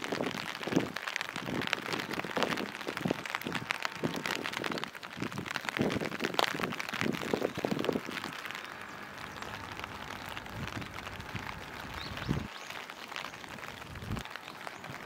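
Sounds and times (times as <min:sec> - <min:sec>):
rain on a wet street: 0:00.0 - 0:15.0.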